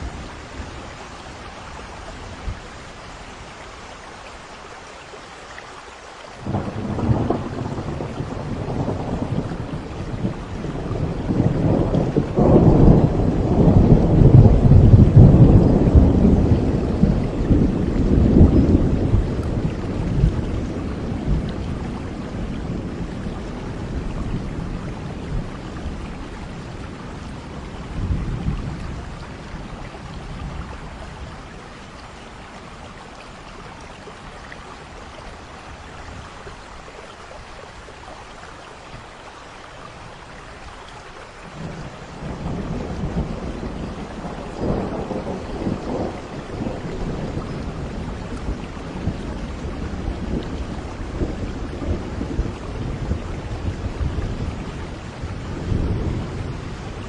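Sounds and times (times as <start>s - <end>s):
steady rainfall: 0.0s - 57.0s
rolling thunder: 6.4s - 31.4s, 41.5s - 57.0s.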